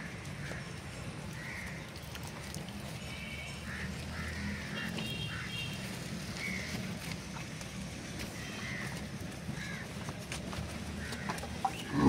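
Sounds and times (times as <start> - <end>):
birds calling: 3.1 - 7.1, 8.2 - 12.0.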